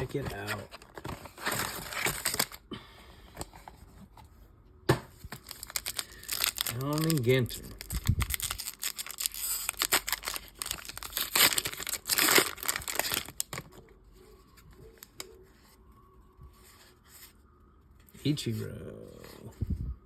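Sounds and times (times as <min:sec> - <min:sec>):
wrapper tearing and crinkling: 0:00.0 - 0:02.6, 0:05.3 - 0:13.8.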